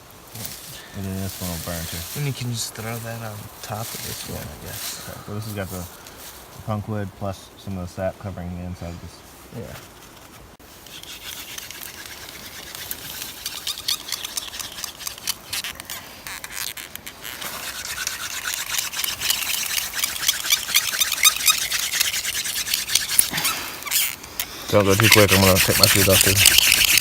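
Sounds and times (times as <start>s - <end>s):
wooden hand drill rubbing wood: 9.6s - 27.0s.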